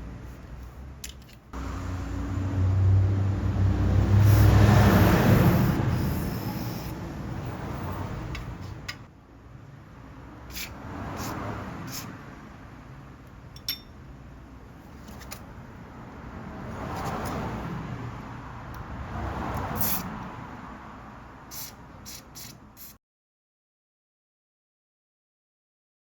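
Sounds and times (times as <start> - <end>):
rushing noise: 1.6 - 8.3
metallic clicks and clinks: 13.5 - 14.0.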